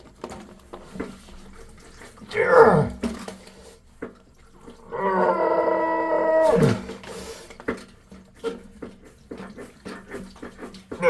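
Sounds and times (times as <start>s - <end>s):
man groaning with effort: 2.3s - 3.0s, 4.9s - 6.9s.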